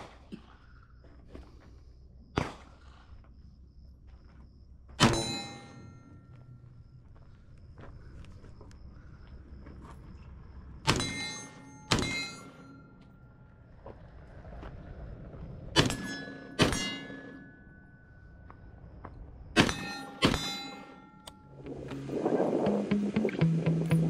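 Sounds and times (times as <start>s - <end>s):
ringing tone: 11.0s - 13.7s, 15.9s - 18.6s, 19.7s - 21.9s
rifle shots: 19.6s - 20.6s.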